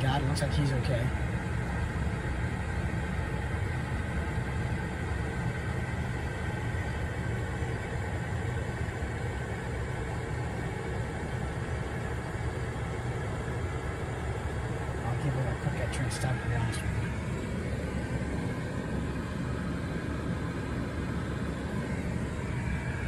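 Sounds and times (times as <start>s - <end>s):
vehicle engine and road noise: 10.4s - 23.0s.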